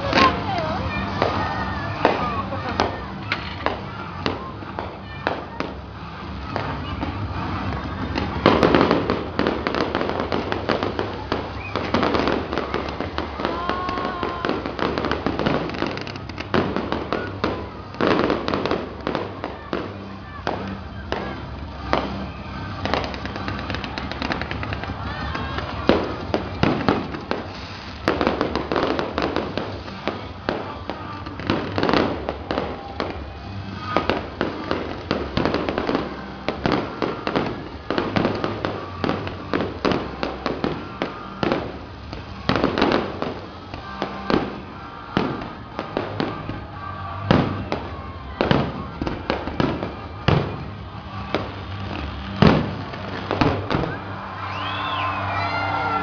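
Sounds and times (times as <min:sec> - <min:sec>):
background music: 0:00.0 - 0:56.0
fireworks bursting: 0:00.0 - 0:56.0.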